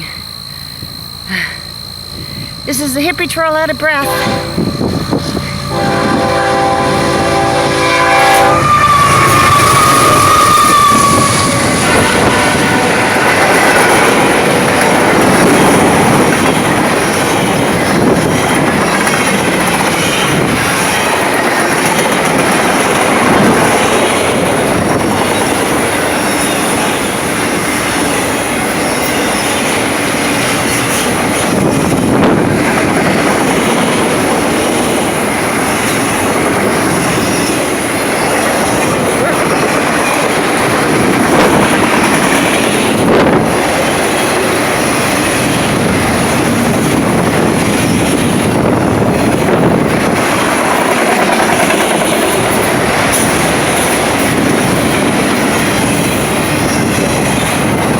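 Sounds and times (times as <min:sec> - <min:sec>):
high wheel squeal: 0:02.2 - 0:14.0, 0:36.9 - 0:40.4
train wheels rolling on rails: 0:02.2 - 0:57.9
multi-tone train horn: 0:04.0 - 0:14.2.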